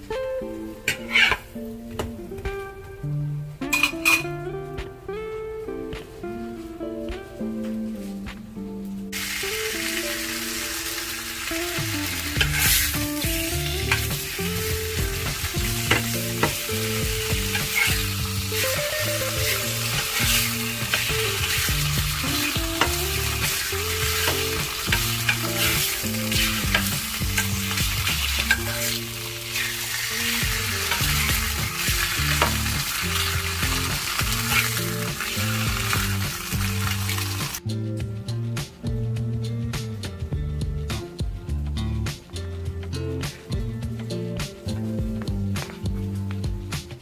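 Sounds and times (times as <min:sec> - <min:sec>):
background music: 0:00.0 - 0:47.0
utensil scraping a pan: 0:00.9 - 0:01.4, 0:12.3 - 0:13.0, 0:13.7 - 0:37.6
food sizzling in a pan: 0:09.1 - 0:37.6.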